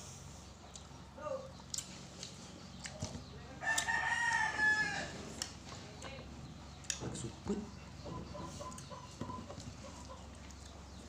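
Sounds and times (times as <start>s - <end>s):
rooster crowing: 3.6s - 5.2s.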